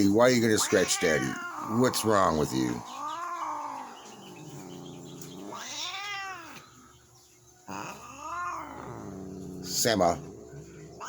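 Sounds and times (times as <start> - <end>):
cat yowling: 0.5 - 4.3, 5.2 - 6.6, 7.7 - 9.2.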